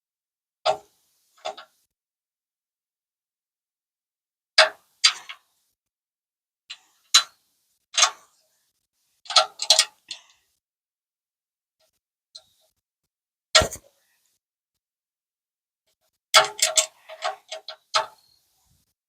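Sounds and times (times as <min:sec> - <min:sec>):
sharp irregular clicks and knocks: 0:00.7 - 0:01.8, 0:04.6 - 0:05.4, 0:06.7 - 0:07.3, 0:08.0 - 0:08.3, 0:09.3 - 0:10.4, 0:15.9 - 0:18.3.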